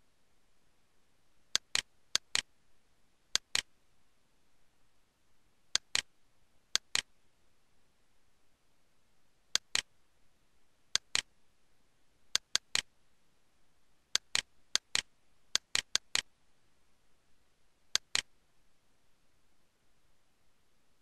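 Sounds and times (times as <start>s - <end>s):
faint steady hiss: 0.0s - 21.0s
computer mouse button clicking: 18.0s - 18.3s.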